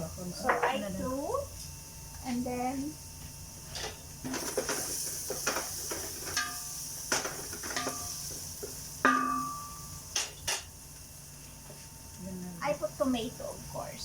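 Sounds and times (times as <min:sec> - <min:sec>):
food sizzling in oil: 0:02.8 - 0:13.6
metal cookware clanking: 0:04.3 - 0:08.4, 0:09.0 - 0:10.7.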